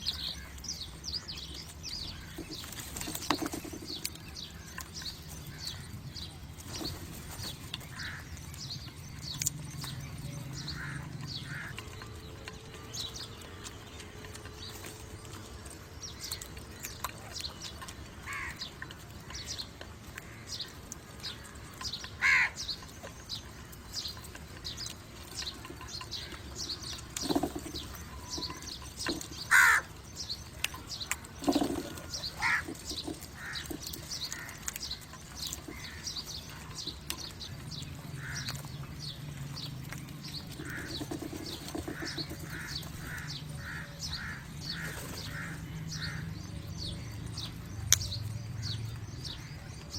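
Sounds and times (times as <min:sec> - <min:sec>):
small birds chirping: 0:00.0 - 0:49.9
crows cawing: 0:07.9 - 0:08.3, 0:10.7 - 0:11.8, 0:18.2 - 0:18.6, 0:22.2 - 0:22.6, 0:29.5 - 0:30.0, 0:32.4 - 0:32.7, 0:33.4 - 0:33.7.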